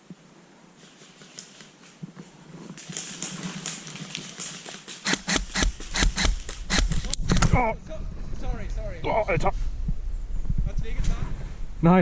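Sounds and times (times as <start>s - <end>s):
airsoft rifle rapid clacks: 2.8s - 7.6s.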